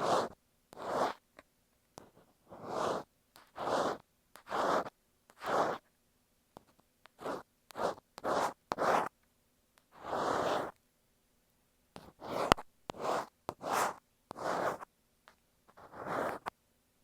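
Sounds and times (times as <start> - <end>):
ear pick scratching microphone: 0.0 - 1.2, 2.0 - 5.9, 7.2 - 9.1, 9.9 - 10.8, 12.0 - 14.9, 15.7 - 16.5.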